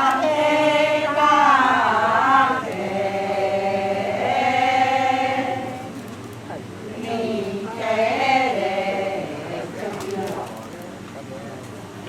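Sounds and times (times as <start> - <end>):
group chanting long notes: 0.0 - 6.0, 6.8 - 10.4.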